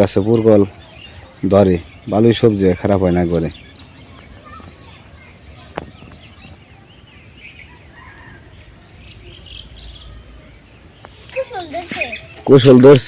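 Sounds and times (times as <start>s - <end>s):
small birds chirping: 0.0s - 13.0s
high insect buzz: 6.2s - 12.4s.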